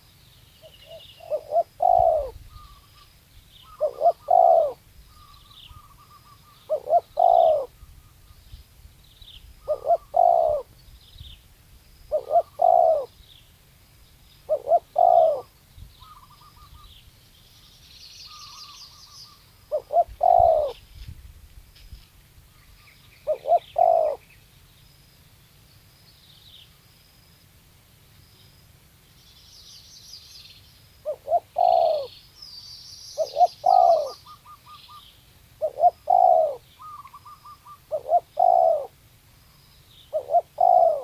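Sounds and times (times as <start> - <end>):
small birds chirping: 0.0 - 21.1, 22.5 - 26.9, 28.2 - 41.0
dove cooing: 0.6 - 7.9, 9.6 - 10.7, 12.1 - 13.2, 14.5 - 16.9, 18.4 - 20.8, 23.2 - 24.2, 31.0 - 32.1, 33.2 - 35.0, 35.6 - 39.0, 40.1 - 41.0.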